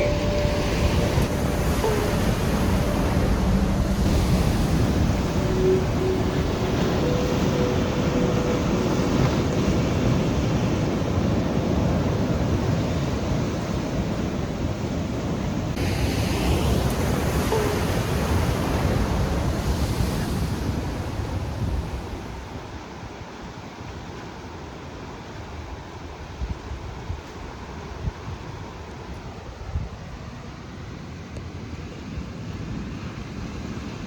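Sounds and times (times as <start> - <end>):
surf against rocky cliffs: 0.0 - 34.0.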